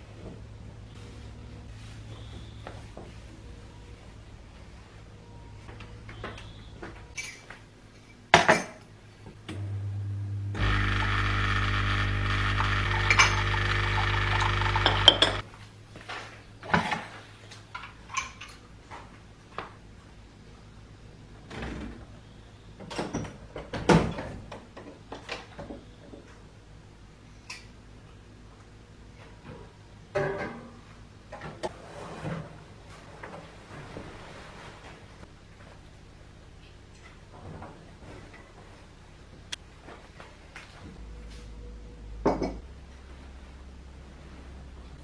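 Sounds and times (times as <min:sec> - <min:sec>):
dishes and cutlery clinking: 0:07.1 - 0:08.8
electric appliance buzzing: 0:09.5 - 0:15.4.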